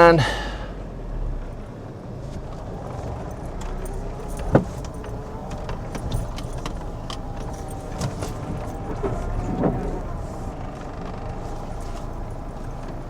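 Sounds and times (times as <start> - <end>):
keys jangling in hand: 3.2 - 8.9.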